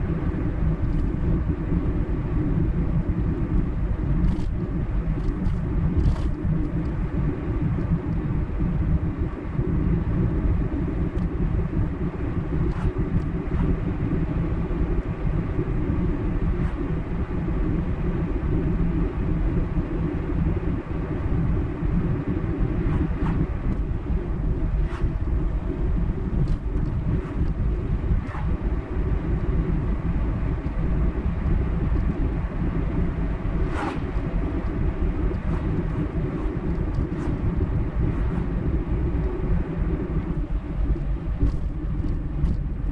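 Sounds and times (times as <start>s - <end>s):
road and tyre noise: 0.0s - 42.9s
car engine hum: 10.7s - 42.9s.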